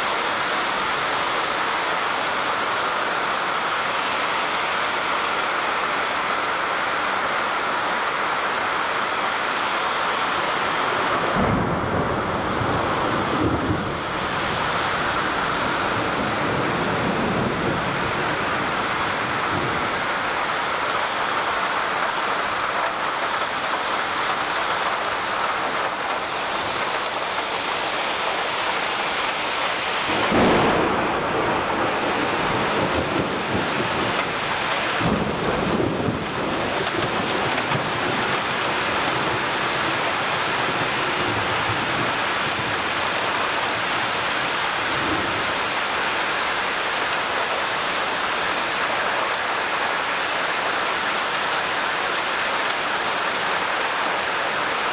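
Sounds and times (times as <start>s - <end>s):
heavy rain falling: 0.0s - 54.9s
low rumbles of thunder: 11.1s - 20.0s, 30.0s - 40.7s.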